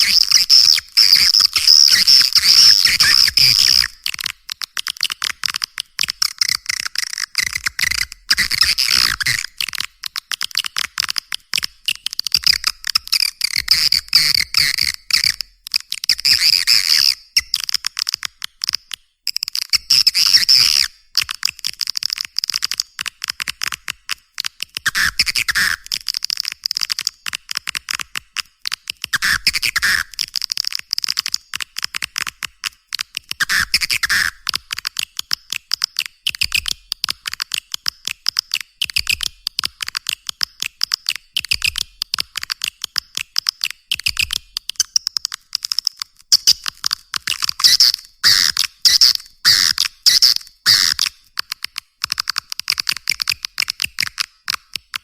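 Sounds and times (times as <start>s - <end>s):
swiftlets twittering and clicking: 0.0s - 17.5s, 43.0s - 54.6s.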